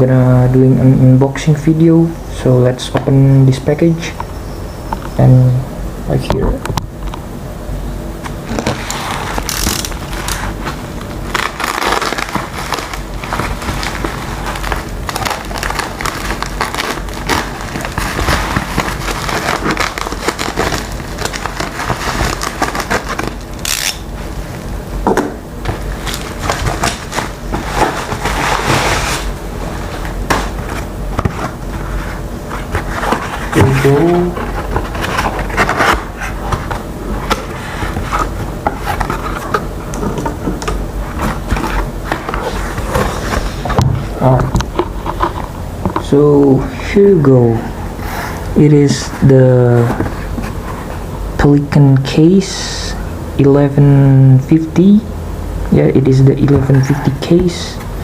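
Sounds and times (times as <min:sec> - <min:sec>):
packaging crackling and rustling: 0:08.3 - 0:24.7, 0:25.6 - 0:46.1.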